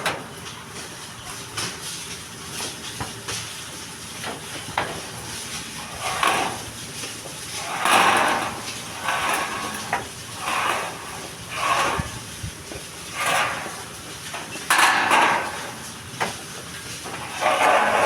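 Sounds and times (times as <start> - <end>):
rhythmic scraping strokes: 7.4 - 16.1, 17.1 - 18.0.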